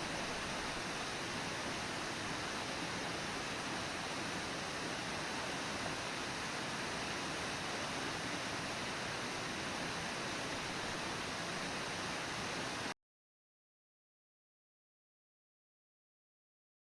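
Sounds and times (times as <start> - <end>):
waterfall roaring: 0.0 - 12.9.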